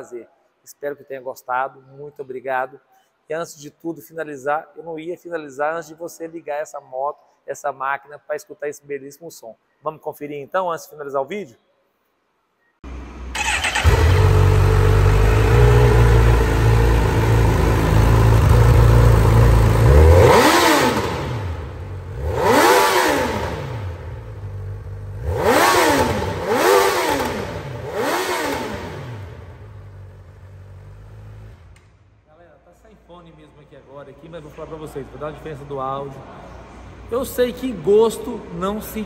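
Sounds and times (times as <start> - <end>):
motorcycle engine idling and revving: 12.9 - 32.1.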